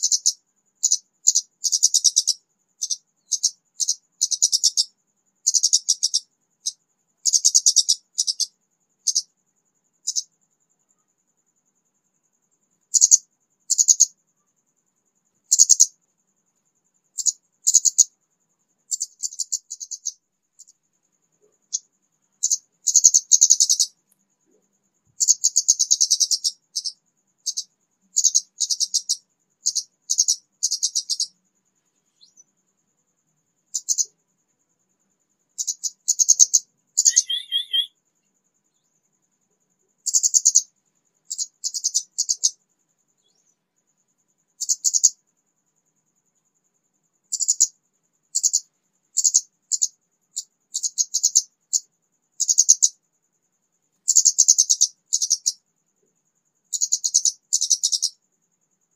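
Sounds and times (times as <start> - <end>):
bird twittering: 35.6 - 38.0
lower two-part bird call: 37.0 - 38.0.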